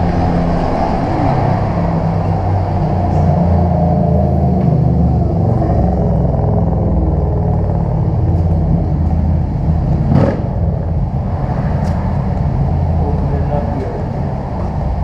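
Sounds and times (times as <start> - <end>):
loud low engine rumble: 0.0 - 15.0.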